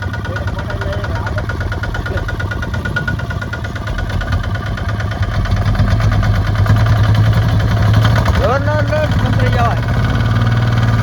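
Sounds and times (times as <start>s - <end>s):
tractor diesel engine knocking: 0.0s - 11.0s.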